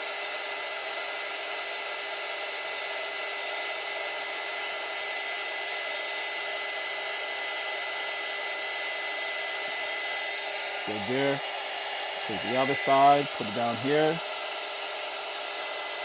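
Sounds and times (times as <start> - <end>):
heat gun blowing: 7.4 - 16.0.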